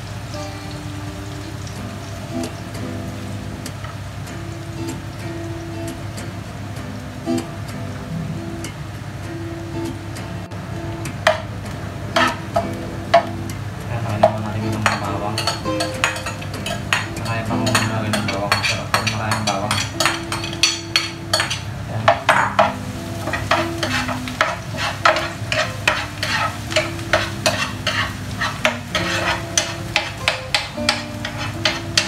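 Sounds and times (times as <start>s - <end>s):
onion and garlic sizzling in oil: 0.0s - 32.0s
spatula scraping a pan: 12.2s - 12.4s, 14.3s - 21.7s, 22.3s - 32.0s.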